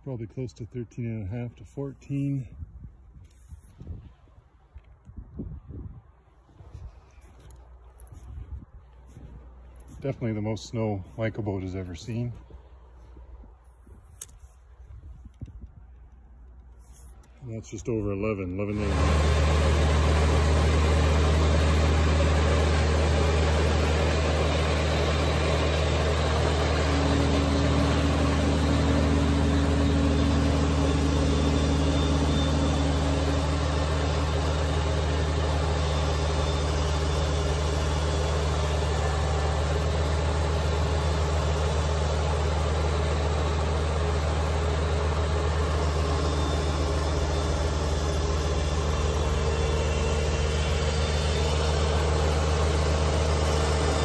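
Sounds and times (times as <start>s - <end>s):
diesel engine running at high revs: 18.5s - 54.0s.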